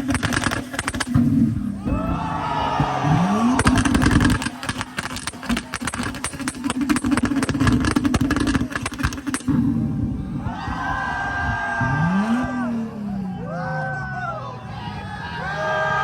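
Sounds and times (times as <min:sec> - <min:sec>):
exhaust pops and bangs: 0:00.0 - 0:12.6
car engine revving: 0:00.0 - 0:16.0.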